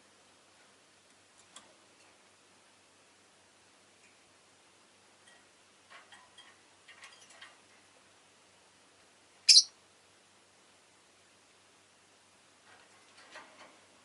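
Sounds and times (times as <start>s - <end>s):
bird high chirp: 9.5s - 9.7s
soft bird chirps and clicks: 9.5s - 9.7s.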